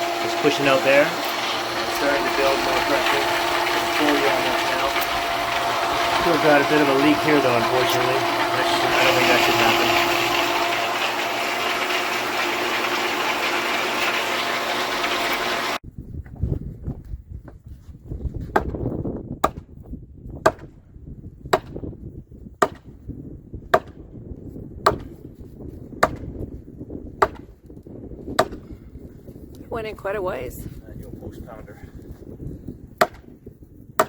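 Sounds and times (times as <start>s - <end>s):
water pump humming: 0.0s - 15.8s
wind rumbling on microphone: 15.8s - 34.0s
post pounder clanking on post: 27.2s - 27.4s, 28.4s - 28.7s.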